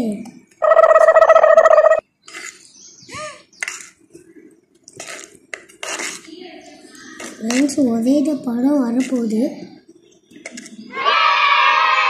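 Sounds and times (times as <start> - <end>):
high-pitched tone: 0.6 - 2.0.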